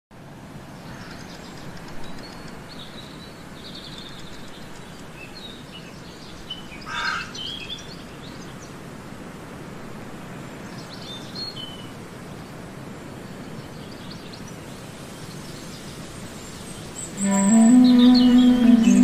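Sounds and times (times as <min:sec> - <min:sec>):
steady background noise: 0:00.1 - 0:19.0
birds chirping: 0:16.6 - 0:19.0.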